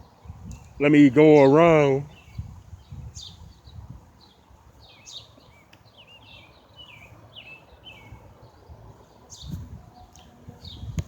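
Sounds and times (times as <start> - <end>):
birds chirping: 0.0 - 11.0
faint outdoor background noise: 0.0 - 11.0.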